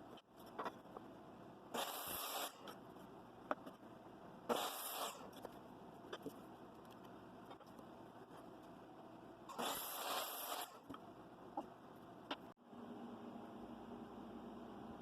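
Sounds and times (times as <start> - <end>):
short hissing scrapes: 4.5 - 5.3, 9.5 - 10.8.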